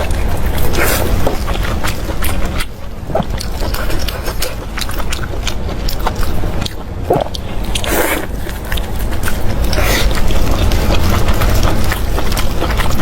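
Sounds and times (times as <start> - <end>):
person biting and chewing: 0.0 - 13.0
low rumble: 2.8 - 4.2.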